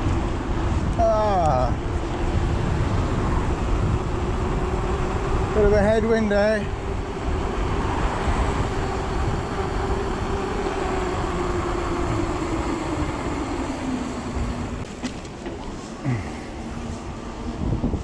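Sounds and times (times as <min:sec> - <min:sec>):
wind noise: 0:00.0 - 0:18.0
electric motor whining: 0:01.8 - 0:18.0.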